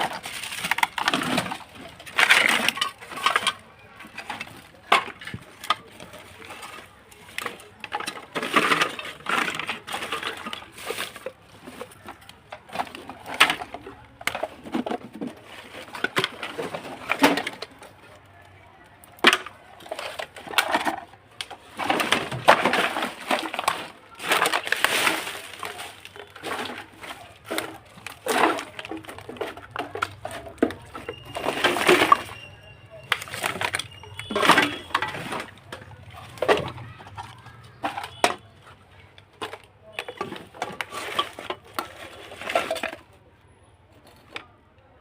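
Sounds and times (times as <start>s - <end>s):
clicks and knocks on plastic device: 19.0s - 43.1s.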